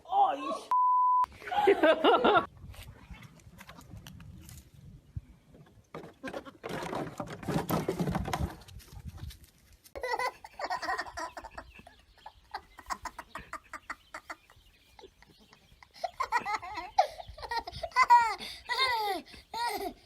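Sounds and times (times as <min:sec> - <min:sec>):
high-pitched laughing: 0:10.0 - 0:20.0.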